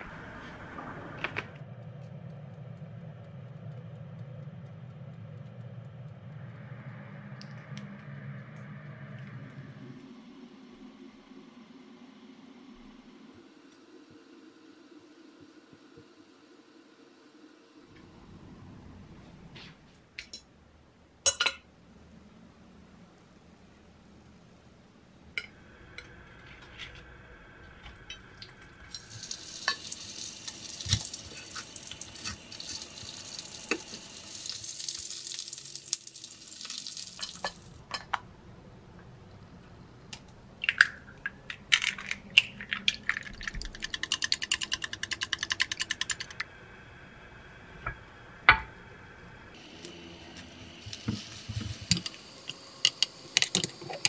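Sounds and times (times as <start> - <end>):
egg sizzling in pan: 28.0 - 37.8, 49.6 - 54.0
cutlet sizzling in frying oil: 28.9 - 37.8
utensils clicking: 41.5 - 46.4.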